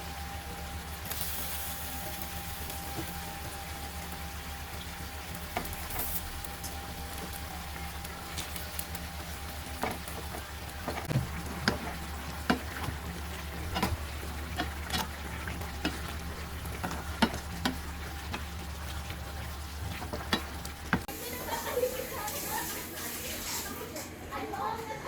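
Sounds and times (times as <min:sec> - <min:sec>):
food sizzling in a pan: 0:00.0 - 0:24.0
spatula knocking and scraping a pan: 0:05.0 - 0:21.1.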